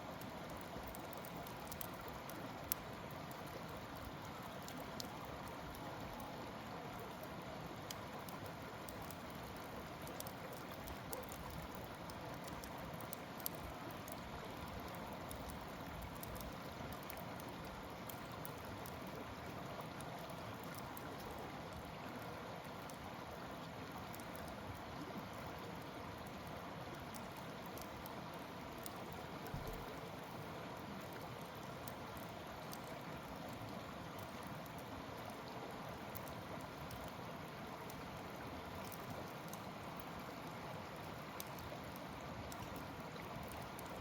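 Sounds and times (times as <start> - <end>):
campfire hissing and crackling: 0.0 - 44.0.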